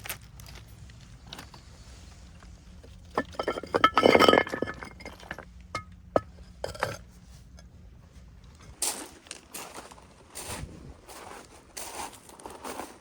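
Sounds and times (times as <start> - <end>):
hard objects clinking: 3.1 - 7.0.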